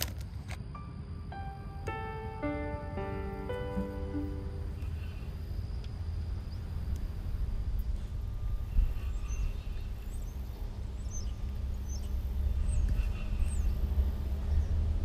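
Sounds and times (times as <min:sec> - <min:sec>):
steady low rumble: 0:00.0 - 0:15.0
small birds chirping: 0:04.7 - 0:15.0.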